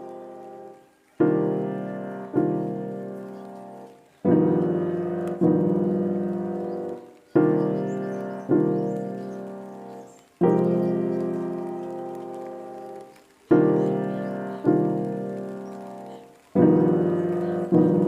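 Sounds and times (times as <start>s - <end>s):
slow piano chords: 0.0s - 18.0s.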